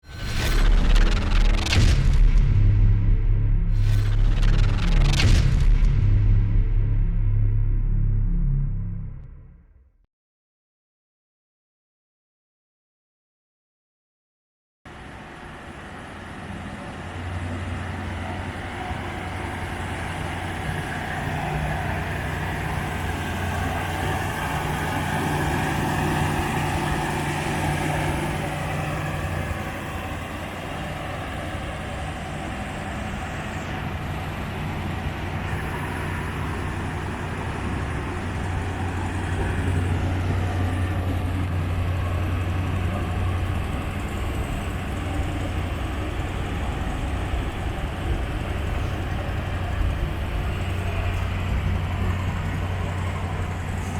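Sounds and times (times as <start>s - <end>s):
car engine idling: 17.9s - 53.9s.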